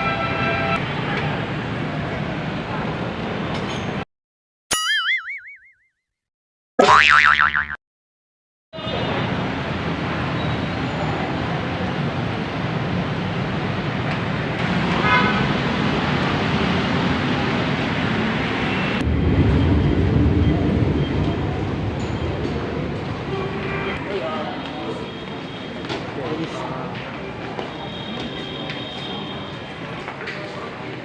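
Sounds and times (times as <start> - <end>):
road traffic noise: 0.0 - 4.1, 8.8 - 31.0
cartoon sound effect: 4.7 - 5.9, 6.8 - 7.8.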